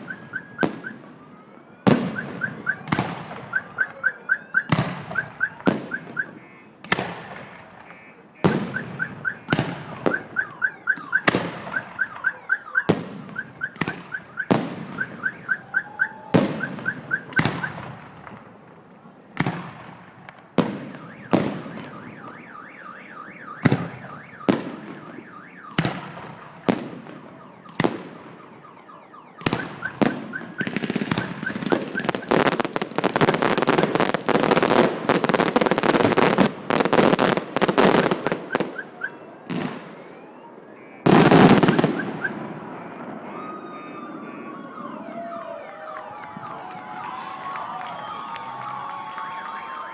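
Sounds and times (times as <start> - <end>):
fireworks bangs and crackling: 0.0 - 49.9
fast high chirp: 21.9 - 24.4.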